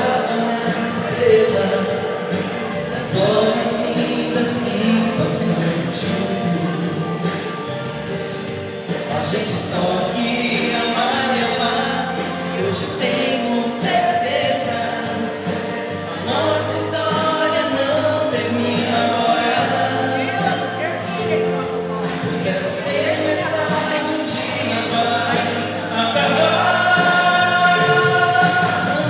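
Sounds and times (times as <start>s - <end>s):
instrumental backing: 0.0s - 29.0s
choir-like singing: 22.0s - 29.0s.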